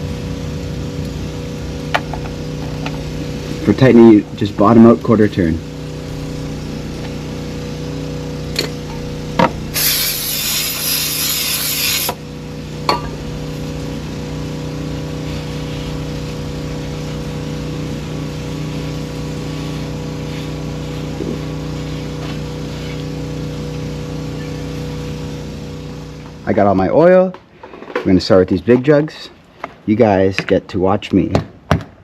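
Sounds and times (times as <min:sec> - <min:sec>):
machine hum: 0:00.0 - 0:27.7
spray hissing: 0:09.6 - 0:12.4, 0:13.7 - 0:23.2.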